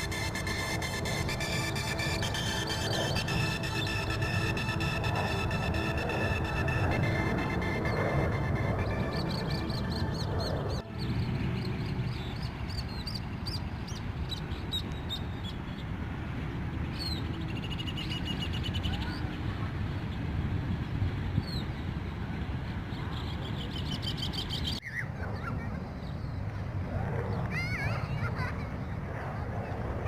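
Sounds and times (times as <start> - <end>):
bird buzzy trill: 0.0 - 13.6
birds chirping: 0.0 - 16.0
low outdoor rumble: 0.0 - 24.0.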